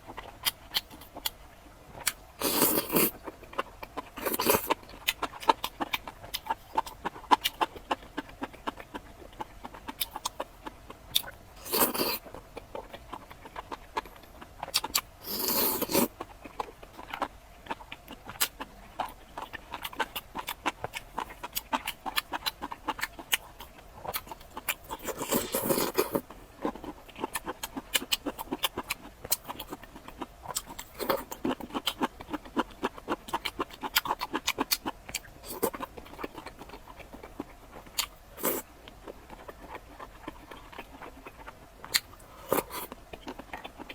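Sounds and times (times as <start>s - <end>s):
person chewing: 0.1s - 43.9s
slurping or crunching: 2.4s - 3.2s, 11.6s - 12.9s, 14.7s - 16.1s, 24.1s - 28.6s, 41.1s - 43.0s.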